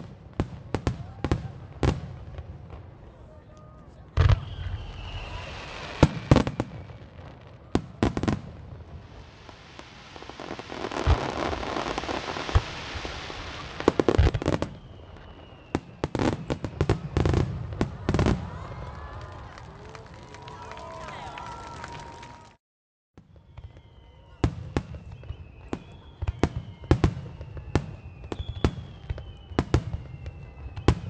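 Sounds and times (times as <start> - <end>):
fireworks crackling hiss: 4.2 - 18.4.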